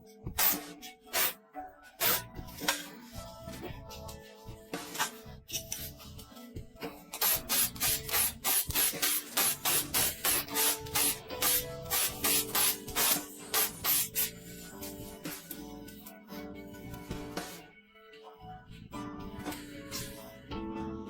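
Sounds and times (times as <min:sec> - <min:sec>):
background music: 0:00.0 - 0:21.0
rhythmic hand rubbing: 0:02.0 - 0:16.2, 0:17.1 - 0:17.7.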